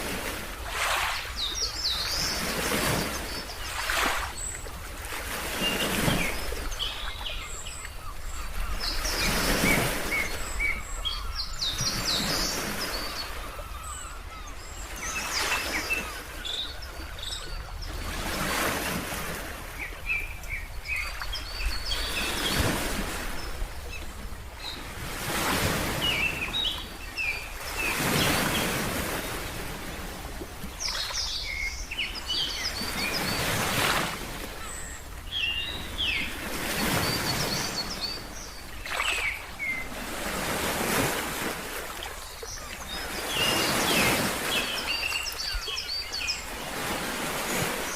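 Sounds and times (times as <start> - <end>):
ocean waves washing in: 0.0 - 6.9
birds chirping: 5.4 - 30.0, 30.6 - 47.9.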